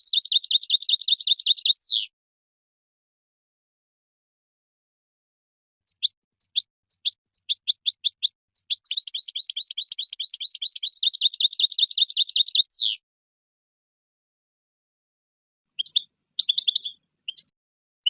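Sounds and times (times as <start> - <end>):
goldfinch singing: 0.0 - 2.1, 5.9 - 13.0, 15.8 - 17.5.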